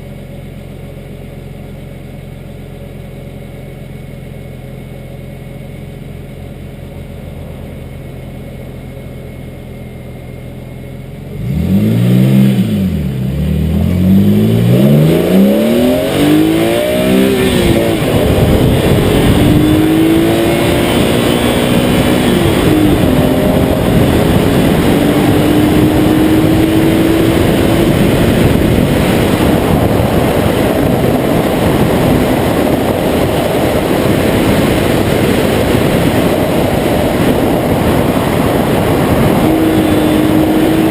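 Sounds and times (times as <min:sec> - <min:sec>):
road and wind noise: 0:00.0 - 0:40.9
car engine revving through gears: 0:11.3 - 0:40.9.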